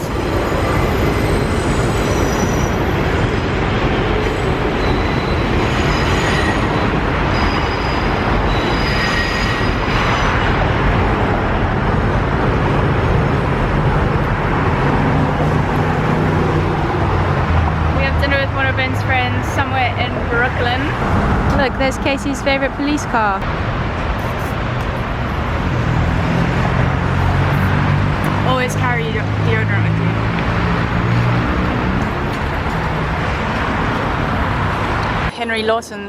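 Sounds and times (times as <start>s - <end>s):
high wheel squeals: 0.0s - 3.5s, 4.2s - 10.6s
train rumbling on rails: 0.0s - 35.4s.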